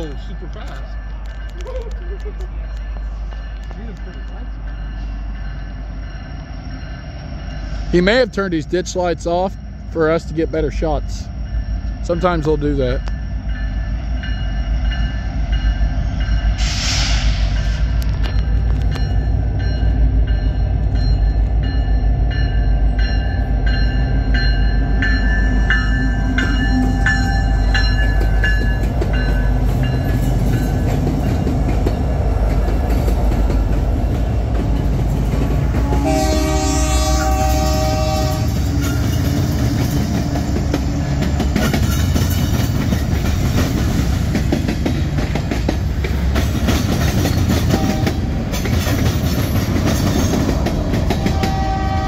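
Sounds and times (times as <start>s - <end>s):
train wheels clattering on rails: 0.0s - 9.5s, 14.4s - 36.6s, 37.2s - 52.0s
diesel locomotive engine rumble: 0.0s - 52.0s
train horn blast: 35.6s - 39.0s, 47.7s - 48.3s, 51.1s - 52.0s.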